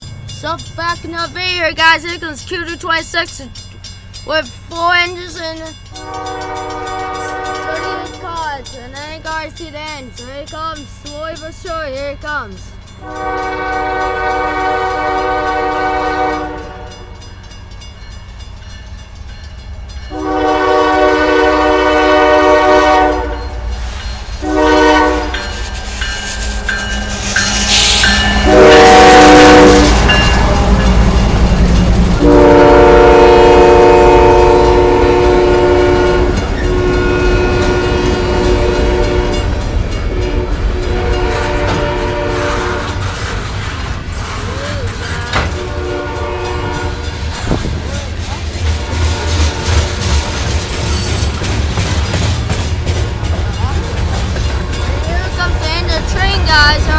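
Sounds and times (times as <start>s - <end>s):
train rumbling: 0.0s - 56.9s
locomotive air horn blasts: 6.0s - 8.2s, 13.0s - 17.2s, 20.1s - 23.5s, 24.4s - 25.6s, 27.1s - 30.9s, 32.2s - 39.5s, 40.1s - 43.5s, 44.2s - 47.8s.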